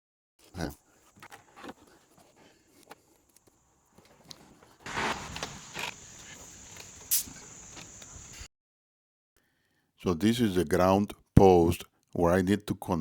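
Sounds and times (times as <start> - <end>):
rustling: 0.5 - 8.5.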